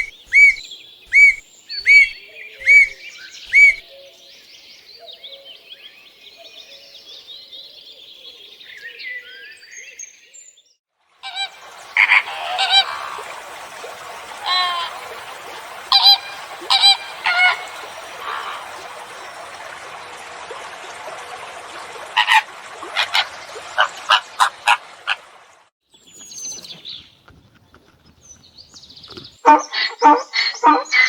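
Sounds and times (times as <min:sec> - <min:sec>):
bird honking calls: 0:00.0 - 0:03.8, 0:11.2 - 0:13.3, 0:14.4 - 0:19.0, 0:22.2 - 0:25.2, 0:29.4 - 0:31.0
high whistling glide: 0:00.0 - 0:03.8.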